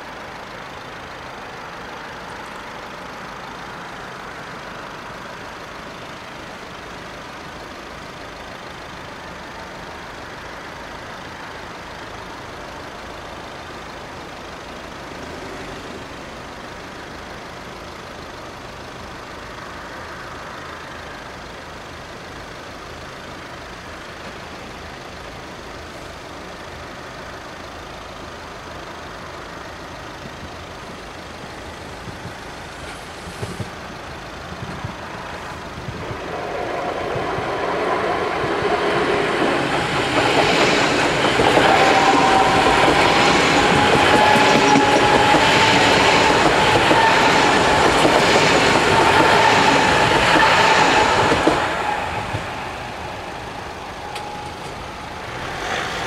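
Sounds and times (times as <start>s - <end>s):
electric train passing: 0.0s - 56.0s
high whine: 30.7s - 56.0s.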